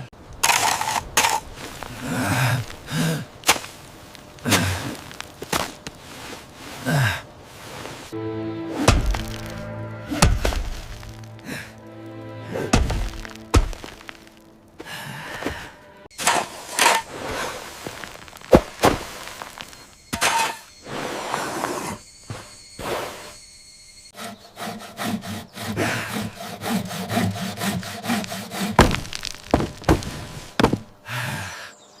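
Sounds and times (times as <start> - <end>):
scraping strokes on wood: 12.7 - 23.4, 24.1 - 30.9
hand saw sawing wood: 24.2 - 30.0.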